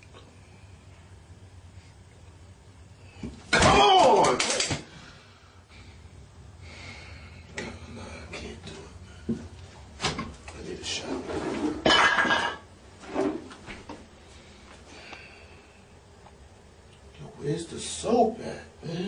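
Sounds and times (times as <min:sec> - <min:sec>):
objects knocking and clattering: 0:11.7 - 0:12.6.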